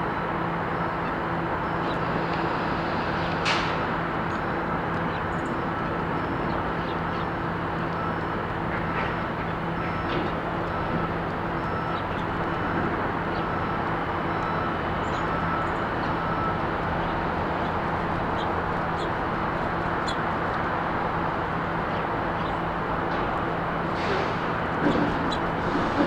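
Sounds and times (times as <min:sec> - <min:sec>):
road traffic rumble: 0:00.0 - 0:26.0
small birds chirping: 0:15.0 - 0:20.8.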